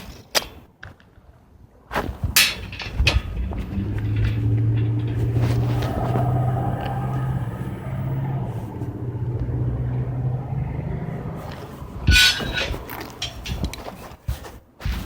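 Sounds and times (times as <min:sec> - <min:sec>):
paving roller engine humming: 0:02.8 - 0:13.9.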